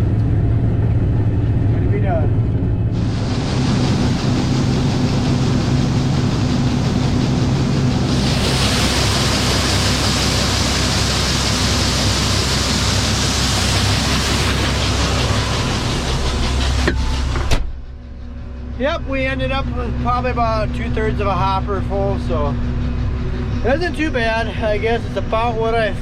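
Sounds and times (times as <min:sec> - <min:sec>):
combine harvester droning: 0:00.0 - 0:26.0
loud rushing hiss: 0:02.9 - 0:17.6.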